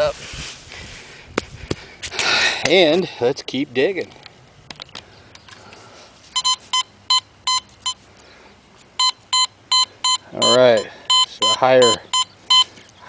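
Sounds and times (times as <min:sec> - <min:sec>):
metal detector beeps: 0:06.4 - 0:08.0, 0:09.0 - 0:12.7.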